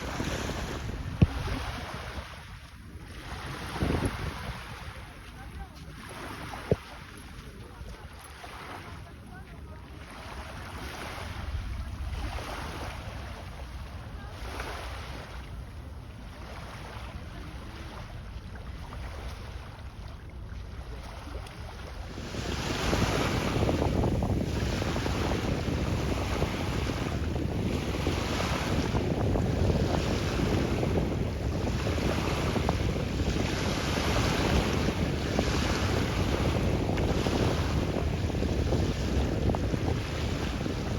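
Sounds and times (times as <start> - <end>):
wind across microphone: 0.0 - 8.2, 21.2 - 40.9
sea water rushing and splashing: 0.0 - 40.9.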